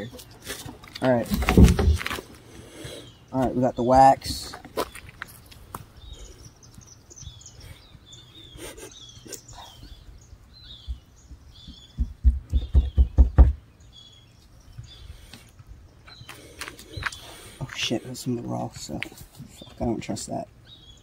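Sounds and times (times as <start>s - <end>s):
small birds chirping: 0.0s - 21.0s
thumping on microphone: 1.3s - 2.2s, 10.8s - 13.6s.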